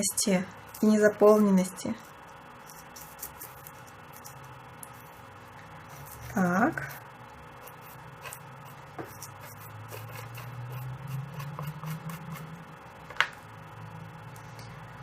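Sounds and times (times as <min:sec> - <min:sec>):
low steady hum: 0:00.0 - 0:15.0
pastel scratching on paper: 0:02.6 - 0:05.2, 0:05.8 - 0:12.5.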